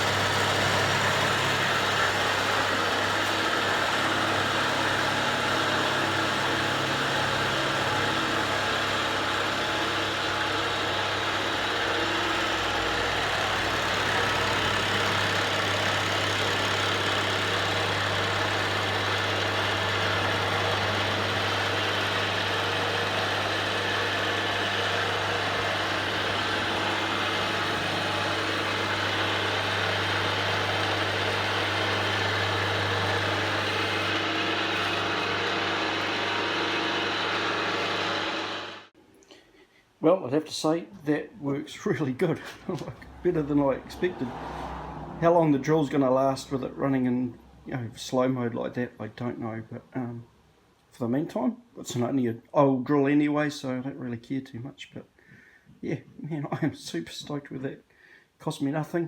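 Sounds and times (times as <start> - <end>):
milling machine droning: 0.0 - 38.9.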